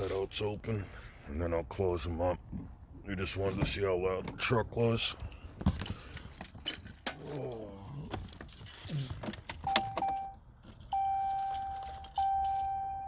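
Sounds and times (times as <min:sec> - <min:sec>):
keys jangling and clicking: 0:05.3 - 0:13.0
dashboard warning chime dinging: 0:09.5 - 0:13.0.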